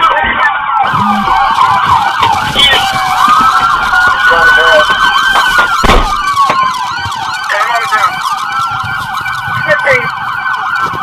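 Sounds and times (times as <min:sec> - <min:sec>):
fast yelping sirens: 0:00.0 - 0:11.0
slow wailing police siren: 0:00.0 - 0:11.0.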